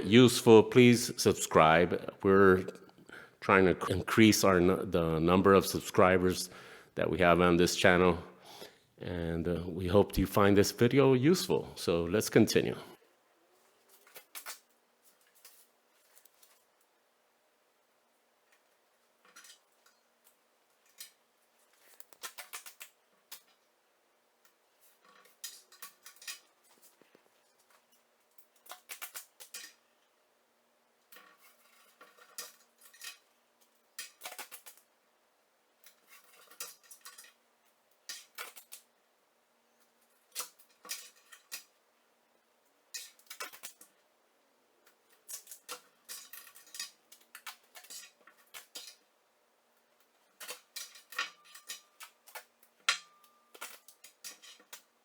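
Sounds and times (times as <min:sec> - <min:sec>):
faint steady hum: 0:00.0 - 0:55.0
tools clicking and rattling: 0:44.8 - 0:49.0, 0:50.3 - 0:54.9.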